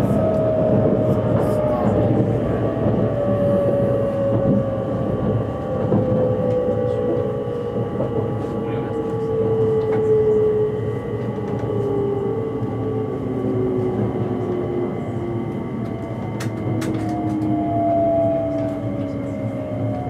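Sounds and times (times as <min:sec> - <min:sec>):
train cabin rumble: 0:00.0 - 0:20.0.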